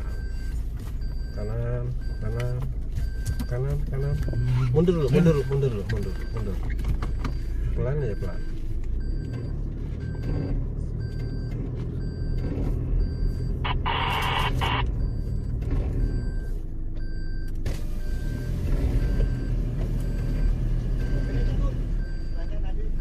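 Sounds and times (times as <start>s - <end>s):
vehicle engine running: 0.0s - 23.0s
reversing beeper chirping: 7.3s - 22.5s.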